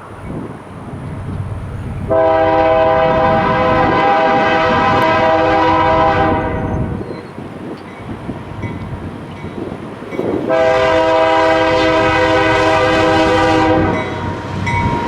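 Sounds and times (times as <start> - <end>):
train rumbling: 0.0 - 15.0
locomotive air horn blast: 2.1 - 6.9, 10.5 - 14.5.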